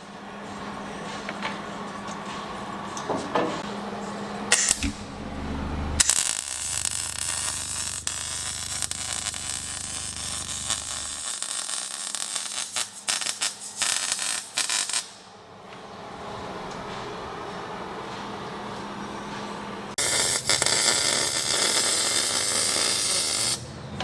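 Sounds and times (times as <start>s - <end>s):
welding: 6.0s - 15.2s, 20.0s - 23.7s.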